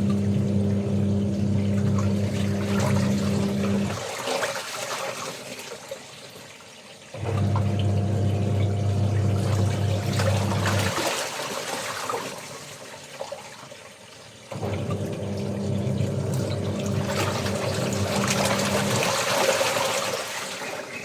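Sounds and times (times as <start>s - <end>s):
washing machine motor humming: 0.0s - 4.1s, 7.2s - 11.2s, 14.5s - 20.4s
water sloshing: 0.0s - 6.4s, 7.2s - 13.9s, 14.5s - 21.0s.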